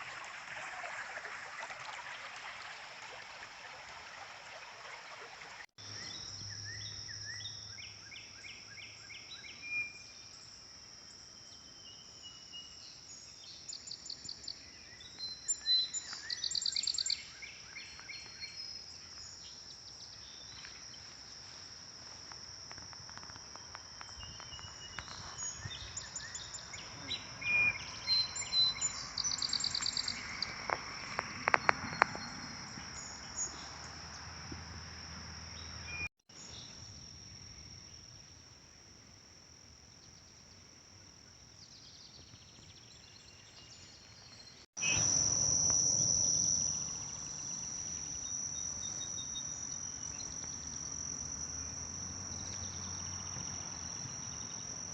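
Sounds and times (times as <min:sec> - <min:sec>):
insects droning: 0:00.0 - 0:54.9
bird chirps: 0:11.4 - 0:20.7, 0:24.0 - 0:34.0, 0:41.8 - 0:54.9.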